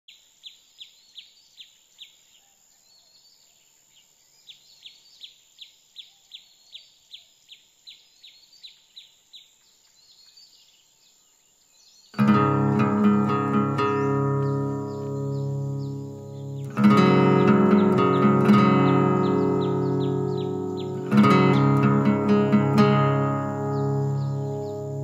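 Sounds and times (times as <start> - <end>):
bird chirping: 0.1 - 25.0
acoustic guitar music: 12.2 - 25.0.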